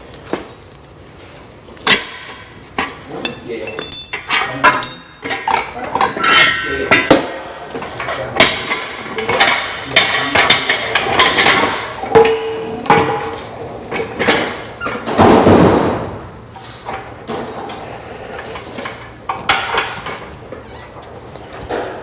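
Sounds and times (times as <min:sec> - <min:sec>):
metal tools clanking: 0:00.2 - 0:01.0, 0:02.8 - 0:15.2
ringing metal clang: 0:03.2 - 0:07.2.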